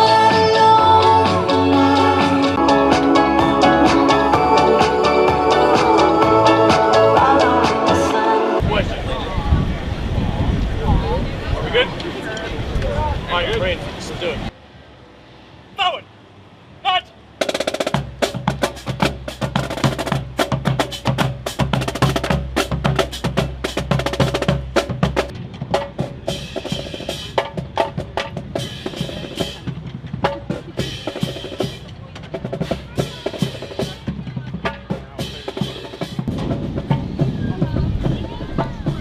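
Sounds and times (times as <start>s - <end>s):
bass line: 0.0s - 9.6s
rapid drum strikes: 17.4s - 39.0s.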